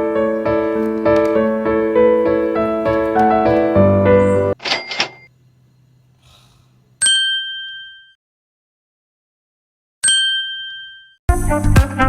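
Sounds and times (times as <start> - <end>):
bright bell dings: 7.0 - 8.2, 10.0 - 11.2.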